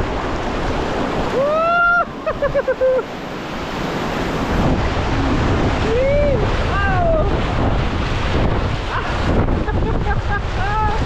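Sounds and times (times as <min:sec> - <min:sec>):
whitewater rapids rushing: 0:00.0 - 0:11.0
wind buffeting microphone: 0:00.0 - 0:11.0
person whooping: 0:01.4 - 0:03.1, 0:05.8 - 0:07.4.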